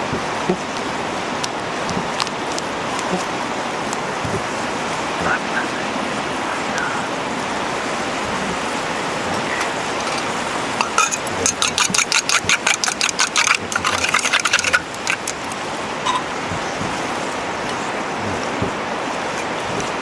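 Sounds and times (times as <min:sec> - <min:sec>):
rapid sharp clicks: 0:00.0 - 0:20.0
steady background hiss: 0:00.0 - 0:20.0.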